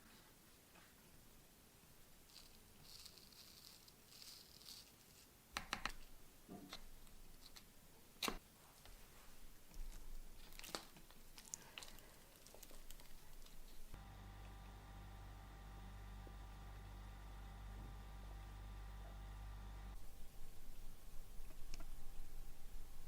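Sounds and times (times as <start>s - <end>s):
crackly rustles: 2.2s - 5.4s, 8.6s - 14.0s.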